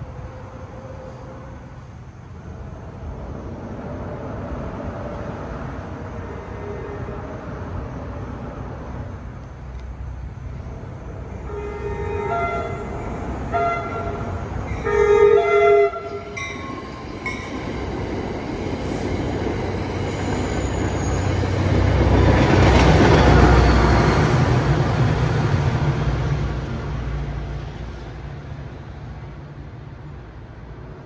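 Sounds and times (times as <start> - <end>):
train wheels rumbling on rail: 0.0 - 31.0
train horn blasts: 6.2 - 7.2, 11.4 - 17.1.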